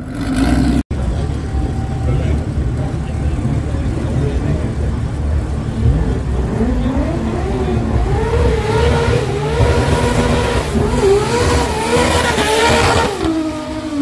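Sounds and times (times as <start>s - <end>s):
car engine revving: 0.0s - 14.0s
heavy low rumble: 0.6s - 11.8s.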